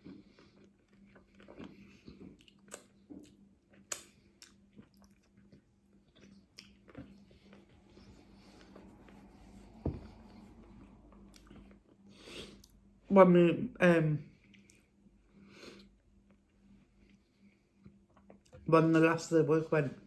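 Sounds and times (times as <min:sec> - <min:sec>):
chewing crunchy taco: 0:00.0 - 0:09.4, 0:10.7 - 0:12.9
wet mouth clicks: 0:02.4 - 0:05.2
low thump: 0:09.8 - 0:10.3.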